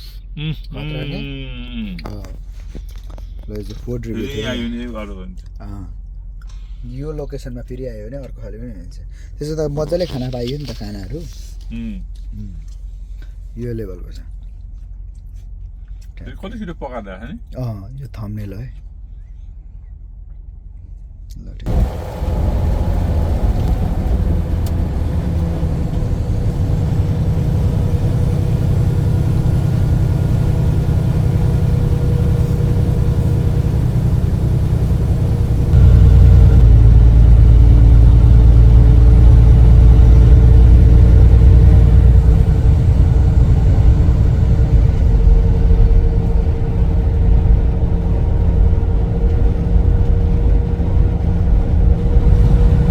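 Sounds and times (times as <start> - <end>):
constant hum: 0.4 - 17.6, 18.6 - 52.9
truck engine and road rumble: 21.7 - 52.9.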